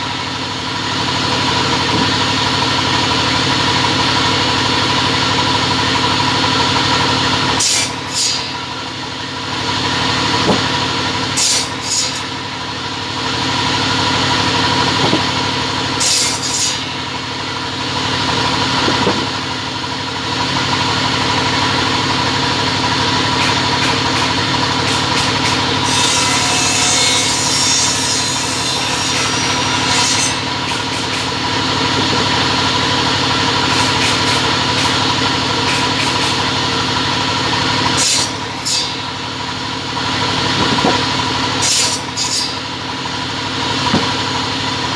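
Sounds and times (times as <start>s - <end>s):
cutting machine motors humming: 0.0s - 44.9s.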